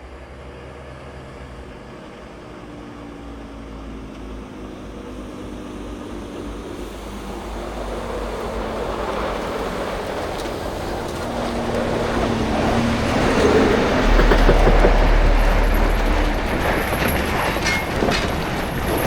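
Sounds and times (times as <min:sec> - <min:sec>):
tyre road noise: 0:07.1 - 0:19.0
truck diesel engine running: 0:10.4 - 0:19.0.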